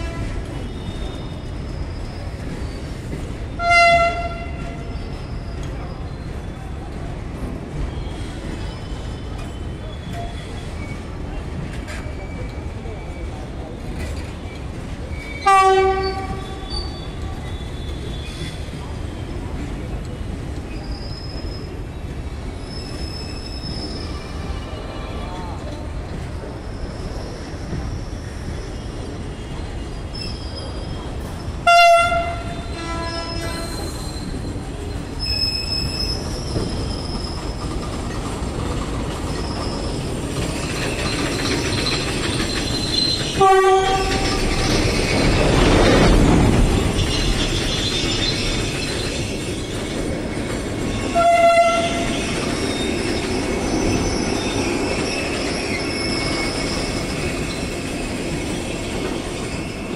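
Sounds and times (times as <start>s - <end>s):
train horn blasts: 0.0s - 0.5s, 3.6s - 5.0s, 15.4s - 16.7s, 31.6s - 33.9s, 43.4s - 44.4s, 51.1s - 52.2s
train rolling past: 0.0s - 59.9s
wheel squeal: 0.5s - 3.4s, 4.6s - 6.8s, 7.9s - 18.9s, 20.7s - 25.1s, 26.4s - 31.6s, 32.6s - 50.2s, 50.9s - 59.9s.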